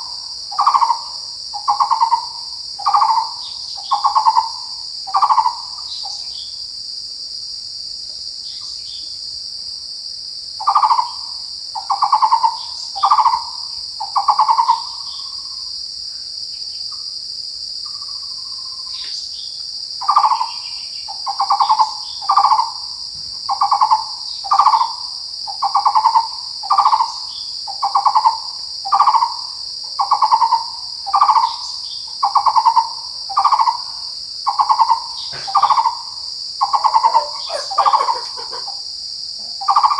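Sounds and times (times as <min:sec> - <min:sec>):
insects buzzing: 0:00.0 - 0:39.9
bird calling in pulsed notes: 0:36.6 - 0:38.8.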